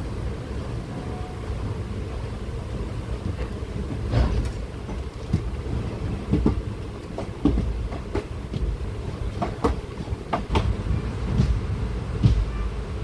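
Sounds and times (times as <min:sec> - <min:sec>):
train running gear rumble: 0:00.0 - 0:13.0
wheel clacks over rail joints: 0:03.2 - 0:12.6.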